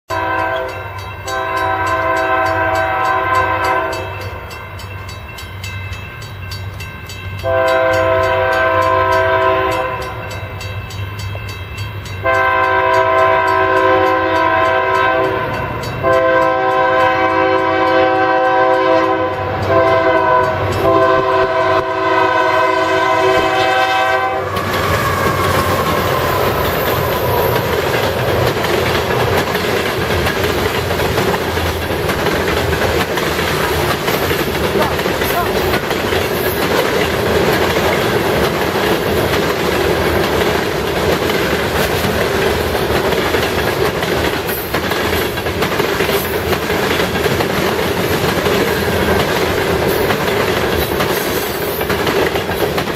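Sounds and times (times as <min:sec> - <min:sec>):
locomotive air horn blasts: 0:00.1 - 0:04.3, 0:07.4 - 0:10.3, 0:12.2 - 0:26.2
train wheels on rails: 0:00.1 - 0:52.9.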